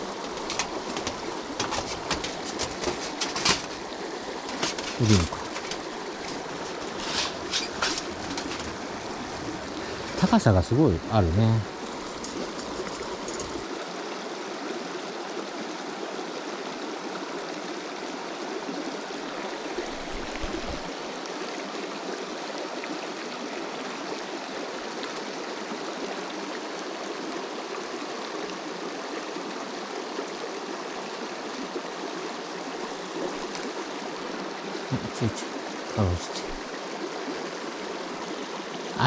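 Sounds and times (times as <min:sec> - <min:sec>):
stream flowing over rocks: 0:00.0 - 0:39.0.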